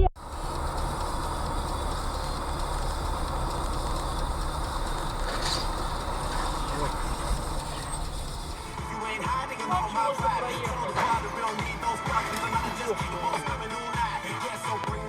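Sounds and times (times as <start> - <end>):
vehicle road and engine noise: 0.0 - 8.9.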